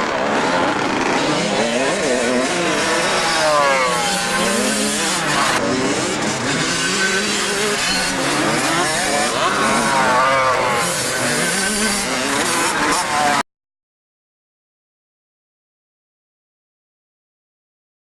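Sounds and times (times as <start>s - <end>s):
motocross bike engines revving: 0.0s - 13.4s.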